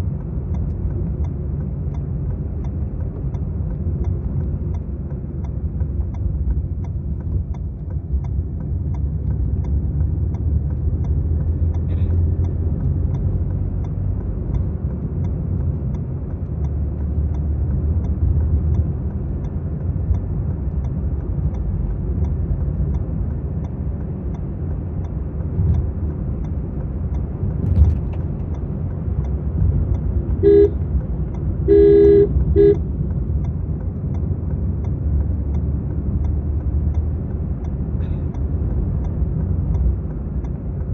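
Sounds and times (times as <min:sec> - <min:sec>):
car engine and road rumble: 0:00.0 - 0:40.9
car horn honking: 0:30.4 - 0:30.8, 0:31.7 - 0:32.9.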